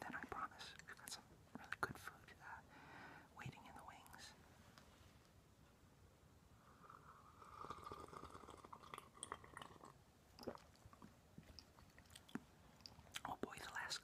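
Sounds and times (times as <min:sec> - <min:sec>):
faint hiss: 0:00.0 - 0:10.8, 0:12.8 - 0:14.0
close-up chewing: 0:07.6 - 0:13.5.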